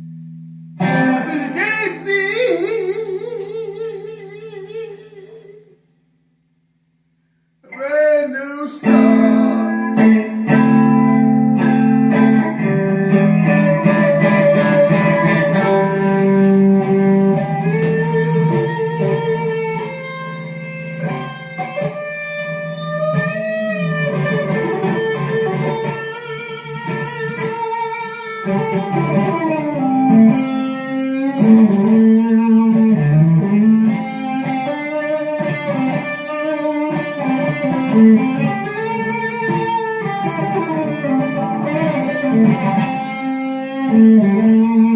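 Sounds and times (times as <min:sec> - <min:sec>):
electric guitar melody with bent notes: 0:00.0 - 0:05.7, 0:08.8 - 0:44.9.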